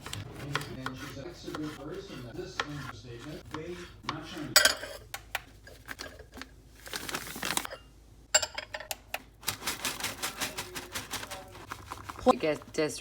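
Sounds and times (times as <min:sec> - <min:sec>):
kitchen utensil clicks and taps: 0:04.1 - 0:06.4, 0:08.4 - 0:09.3.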